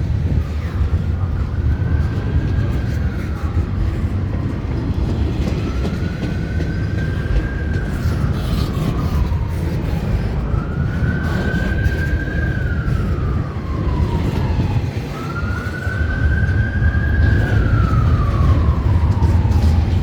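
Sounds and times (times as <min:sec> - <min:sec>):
train rumbling past: 0:00.0 - 0:20.0
siren wailing: 0:04.7 - 0:20.0.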